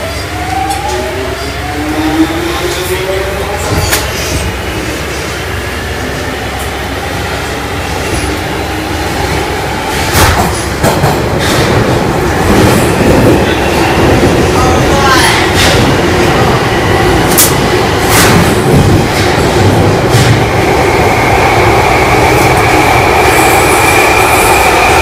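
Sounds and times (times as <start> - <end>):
wheels rumbling on rail: 0.0 - 25.0
sharp track knocks: 10.0 - 12.9.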